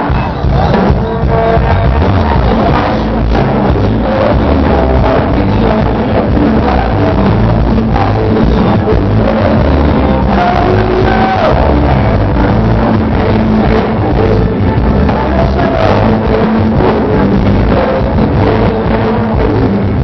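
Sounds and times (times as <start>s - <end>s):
live band playing rock music: 0.0s - 20.0s.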